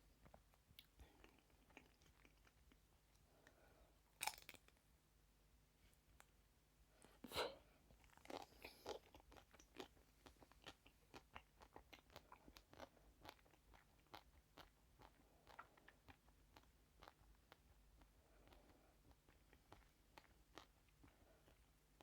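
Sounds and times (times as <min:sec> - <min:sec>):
crunchy chewing: 0:00.2 - 0:02.8, 0:08.0 - 0:22.0.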